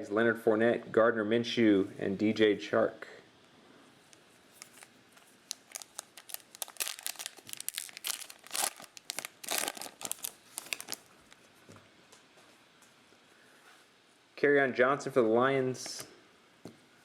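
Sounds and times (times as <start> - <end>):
wrapper tearing and crinkling: 4.5 - 11.4.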